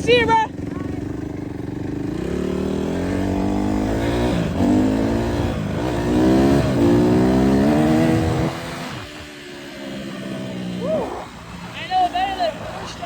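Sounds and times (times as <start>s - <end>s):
dirt bike engine accelerating: 0.0s - 13.0s.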